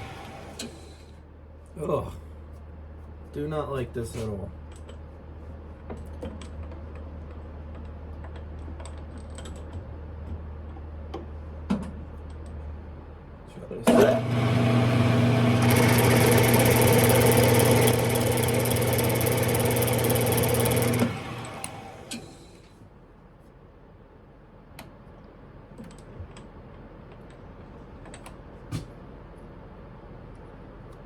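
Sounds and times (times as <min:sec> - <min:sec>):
lathe motor humming and whining: 0:00.0 - 0:00.8, 0:13.9 - 0:22.6.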